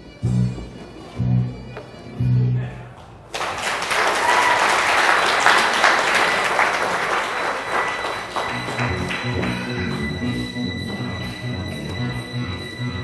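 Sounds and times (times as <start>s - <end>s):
audience applauding: 3.3s - 10.4s
music with low bass: 8.5s - 13.0s.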